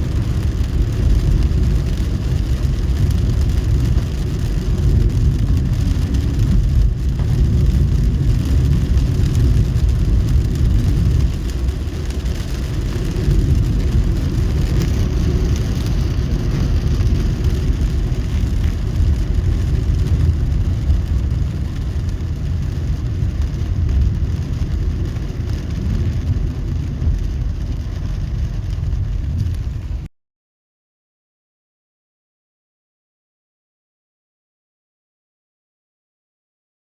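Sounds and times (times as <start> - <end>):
car driving on wet road: 0.0 - 30.1
hiss of rain and spray: 0.0 - 30.1.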